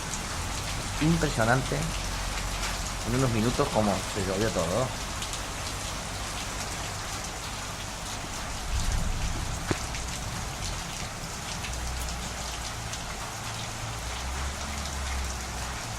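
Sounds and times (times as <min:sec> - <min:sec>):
steady rain falling: 0:00.0 - 0:15.9
low rumble: 0:08.5 - 0:11.3.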